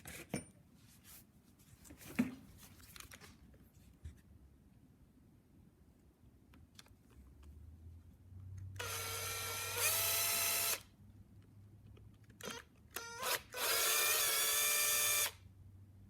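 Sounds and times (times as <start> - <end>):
power tool motor whirring: 8.8 - 10.8, 13.0 - 15.4.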